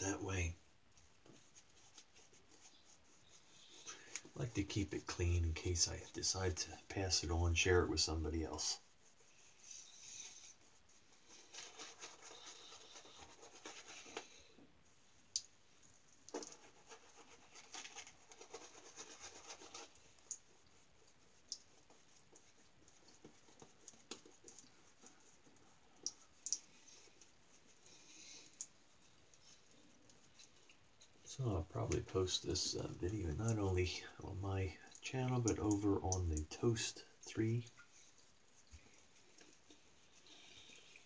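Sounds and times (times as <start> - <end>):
shaving brush swirling lather: 1.3 - 14.4, 16.3 - 34.6.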